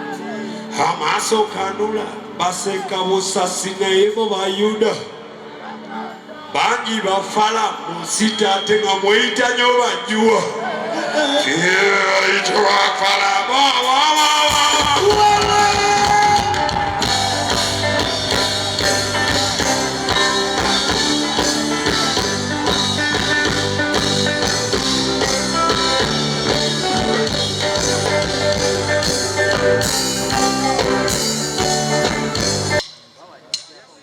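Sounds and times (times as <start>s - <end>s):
instrumental band music with guitar: 14.2s - 33.1s.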